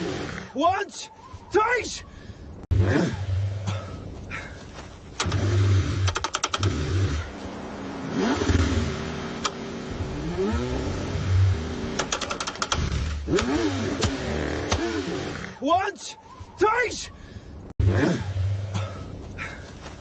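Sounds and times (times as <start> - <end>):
car engine cranking: 5.1 - 7.4, 8.0 - 15.6.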